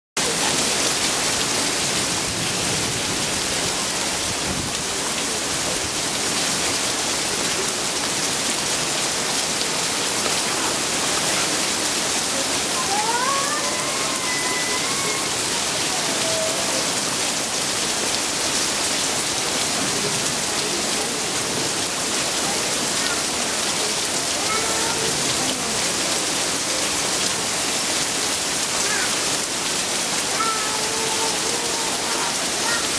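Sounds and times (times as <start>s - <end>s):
steady rain falling: 0.2s - 32.9s
rising gliding call: 12.8s - 17.2s.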